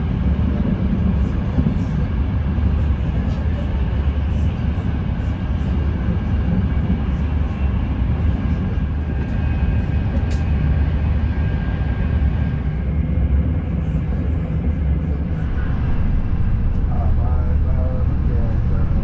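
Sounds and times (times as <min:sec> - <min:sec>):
train rumbling from inside coach: 0:00.0 - 0:19.0.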